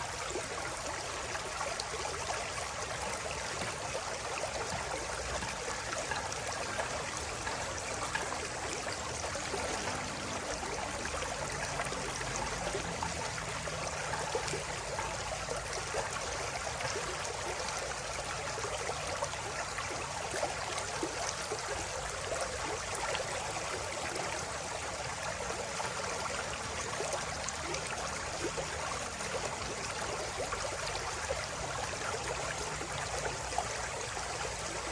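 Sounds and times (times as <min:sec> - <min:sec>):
river water babbling: 0:00.0 - 0:34.9.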